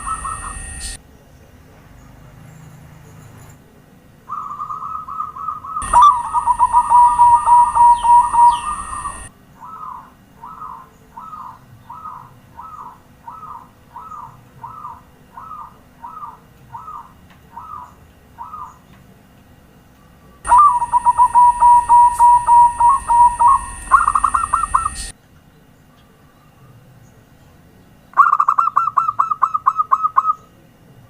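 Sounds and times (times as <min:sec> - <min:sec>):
dove cooing: 0:00.0 - 0:01.0, 0:04.3 - 0:18.8, 0:20.5 - 0:25.1
steady high hiss: 0:00.0 - 0:01.0, 0:05.8 - 0:09.3, 0:20.5 - 0:25.1
rapid rolling coo phrase: 0:05.8 - 0:09.9, 0:20.5 - 0:25.1.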